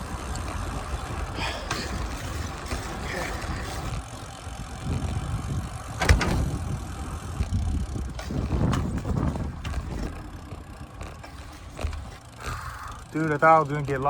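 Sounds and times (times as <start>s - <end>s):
wind noise: 0.0s - 12.2s
bicycle rattles: 0.0s - 14.0s
bicycle road rumble: 0.0s - 14.0s.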